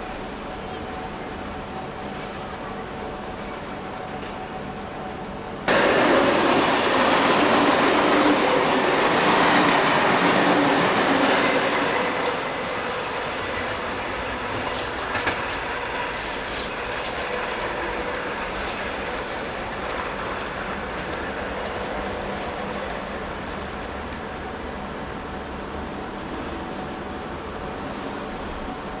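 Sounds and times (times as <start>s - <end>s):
train running on rails: 0.0s - 29.0s
wheels clicking over rail joints: 5.2s - 24.9s.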